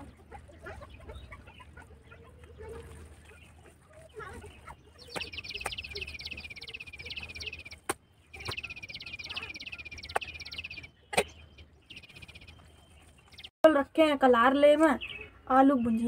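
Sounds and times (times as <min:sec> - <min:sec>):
bird trilling: 0:04.5 - 0:13.5.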